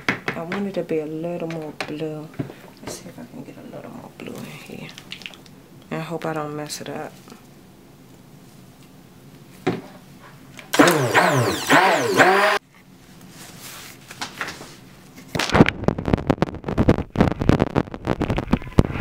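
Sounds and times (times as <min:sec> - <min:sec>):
stick blender motor running: 0:10.7 - 0:12.6.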